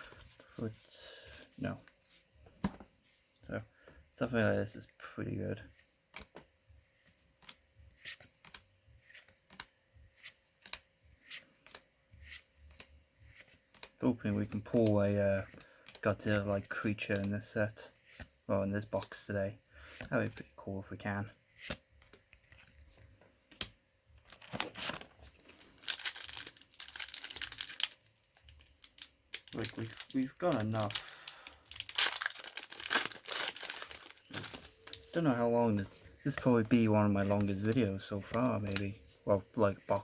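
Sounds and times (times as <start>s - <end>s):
foil wrapper tearing and crinkling: 24.2s - 35.2s.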